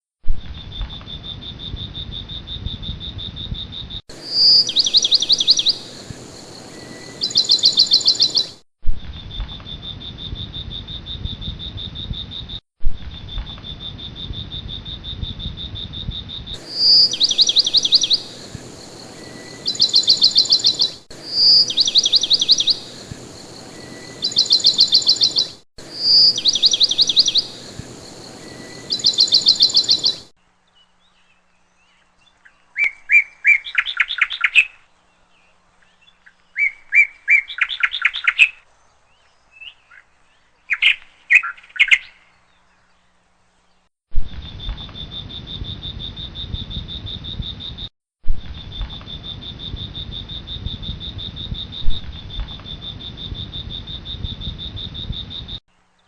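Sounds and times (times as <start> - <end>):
chirping calls in rapid trills: 2.1 - 8.6, 14.7 - 30.3.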